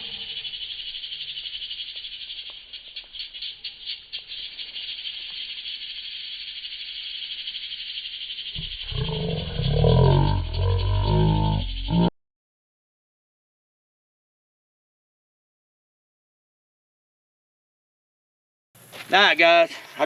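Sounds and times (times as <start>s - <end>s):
frogs calling: 0.0s - 12.1s.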